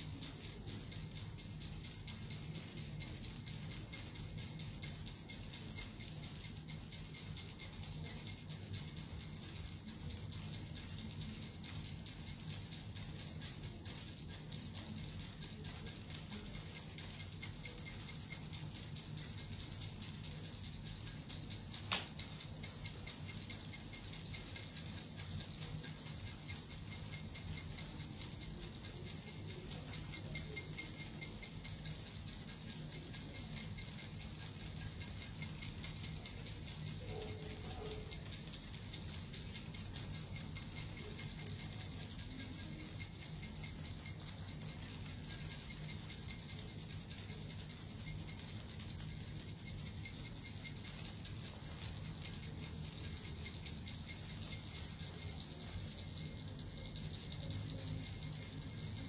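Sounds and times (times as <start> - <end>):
jingle bells shaken: 0.0 - 59.0.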